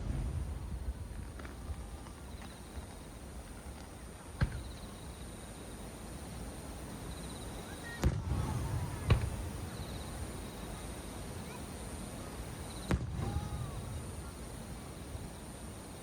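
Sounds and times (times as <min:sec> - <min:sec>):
low rumble after bangs: 0:00.0 - 0:02.2
insects chirping faintly: 0:00.0 - 0:08.2, 0:08.8 - 0:13.0, 0:13.7 - 0:16.0.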